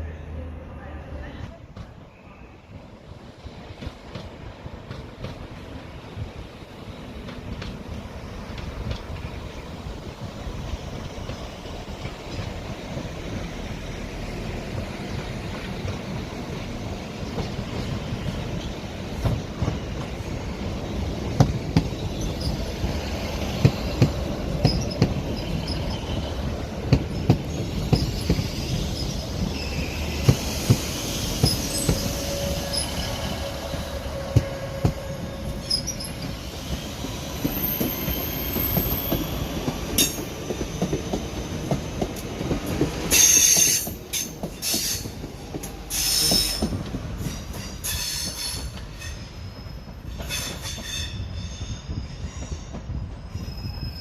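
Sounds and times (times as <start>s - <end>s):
train wheels clicking over joints: 3.4s - 53.9s
train wheel squeals: 21.7s - 41.8s, 43.0s - 54.0s.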